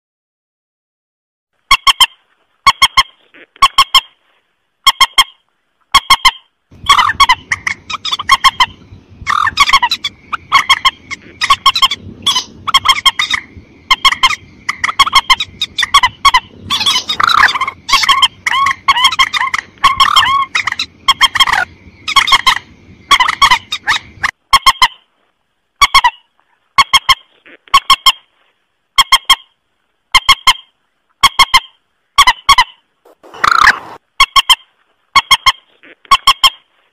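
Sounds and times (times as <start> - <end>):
recorded waterbird honking calls: 4.8 - 25.0, 30.1 - 34.6
low hiss: 32.9 - 34.1.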